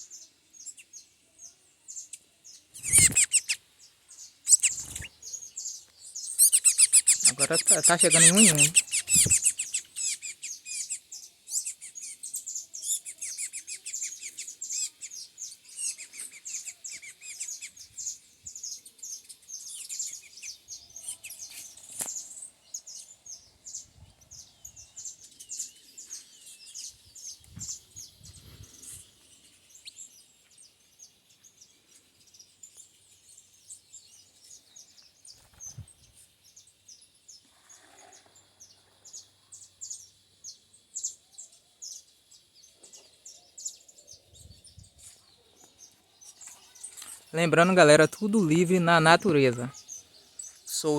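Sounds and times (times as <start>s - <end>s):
songbirds chirping: 0.0s - 50.9s.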